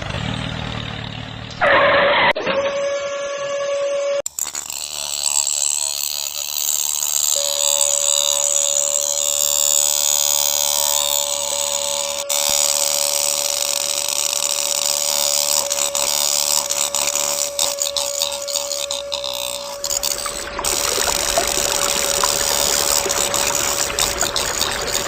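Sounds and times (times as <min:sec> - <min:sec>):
small electric motor whining: 0:00.0 - 0:25.0.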